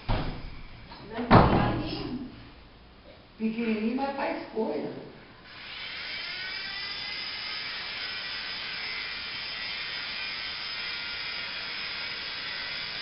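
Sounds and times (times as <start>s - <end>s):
toy helicopter motor whining: 5.4s - 13.0s.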